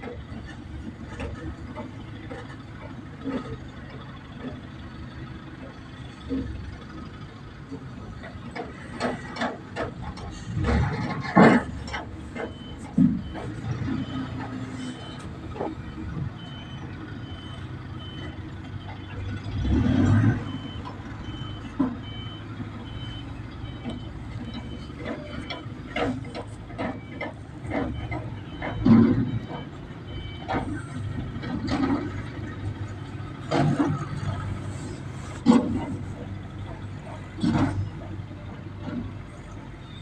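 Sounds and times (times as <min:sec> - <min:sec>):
diesel engine running: 0:00.0 - 0:40.0
metal knocks and clanks: 0:07.8 - 0:16.6, 0:20.1 - 0:39.3
reversing alarm beeps: 0:09.8 - 0:38.2, 0:39.4 - 0:40.0.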